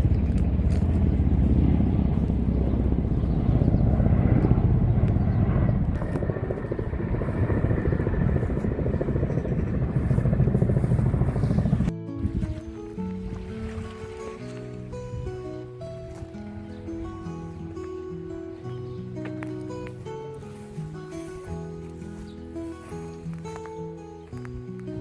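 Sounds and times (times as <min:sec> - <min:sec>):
low fluttering rumble: 0:00.0 - 0:12.6.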